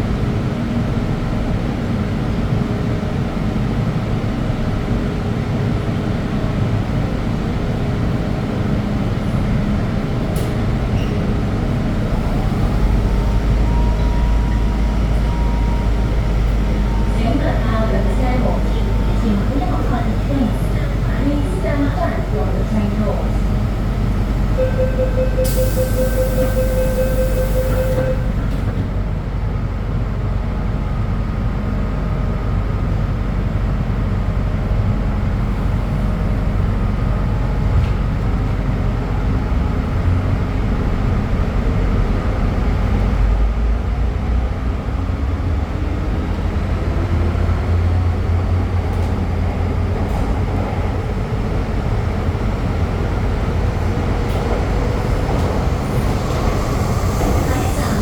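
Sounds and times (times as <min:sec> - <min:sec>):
train wheel and track rumble: 0:00.0 - 0:58.0
short steady tone: 0:24.6 - 0:28.4.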